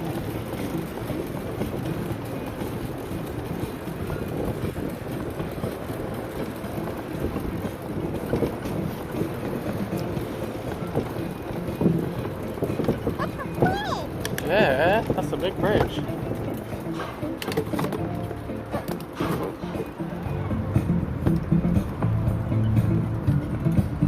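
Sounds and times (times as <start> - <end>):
wind noise on microphone: 0.0 - 24.0.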